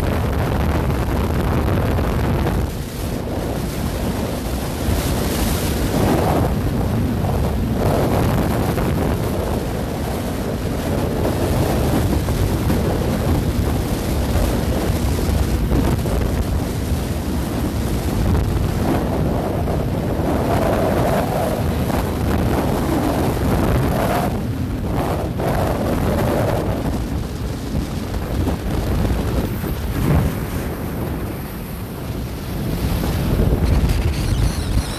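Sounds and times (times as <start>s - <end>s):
wind buffeting microphone: 0.0s - 34.9s
road noise: 18.9s - 34.9s.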